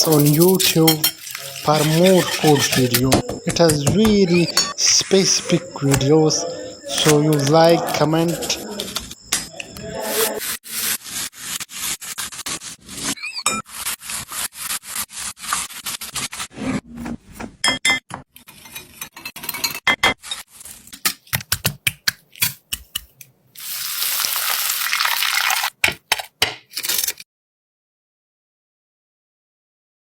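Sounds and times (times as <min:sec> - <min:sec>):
food sizzling in hot oil: 0:00.0 - 0:03.0, 0:23.6 - 0:25.8
utensils scraping cookware: 0:00.0 - 0:03.3, 0:18.4 - 0:21.0.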